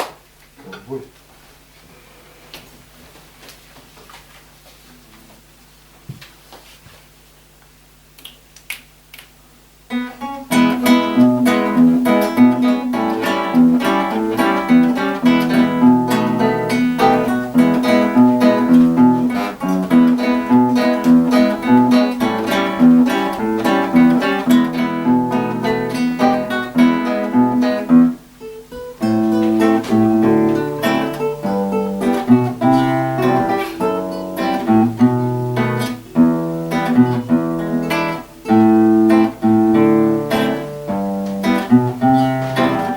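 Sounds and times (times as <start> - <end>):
acoustic guitars playing: 9.8 - 42.9.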